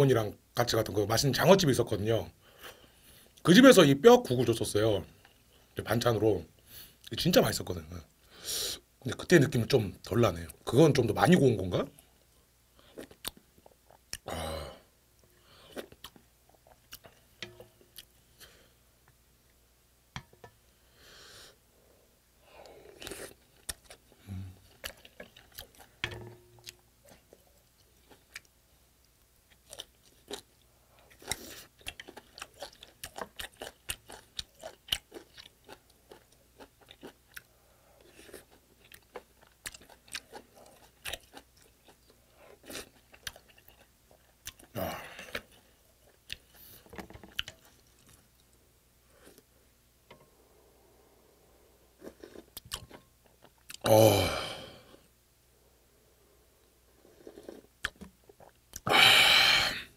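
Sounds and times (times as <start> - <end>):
person chewing: 12.8 - 14.4, 15.6 - 18.2, 22.6 - 49.5, 51.9 - 55.0, 56.9 - 59.8
mouth clicks and wet smacks: 12.9 - 14.3, 57.8 - 58.9.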